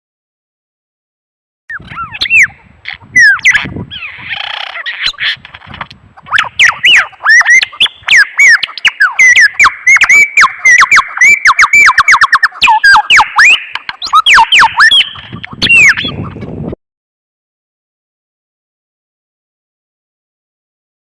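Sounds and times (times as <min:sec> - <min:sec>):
birds squawking: 0:01.7 - 0:16.7.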